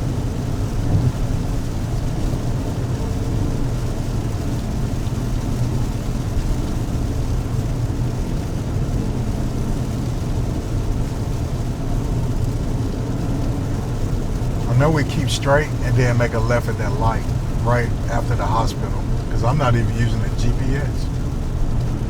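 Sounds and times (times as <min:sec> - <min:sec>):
car engine rumble: 0:00.0 - 0:03.0, 0:10.8 - 0:22.0.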